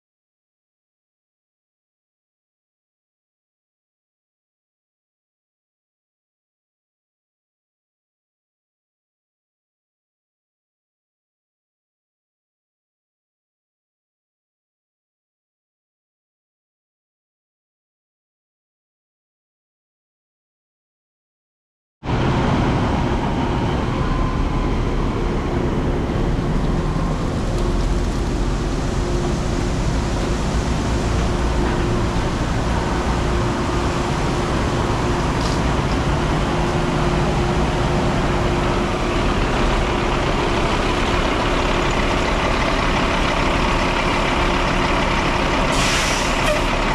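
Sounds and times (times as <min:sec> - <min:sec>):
harvest machinery running: 0:22.1 - 0:46.9.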